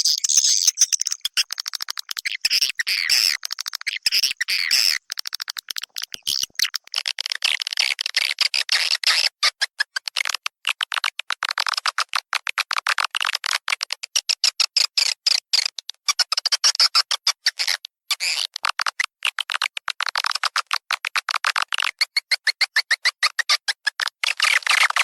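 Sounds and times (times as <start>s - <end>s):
swiftlets chirping and twittering: 0.0s - 6.9s.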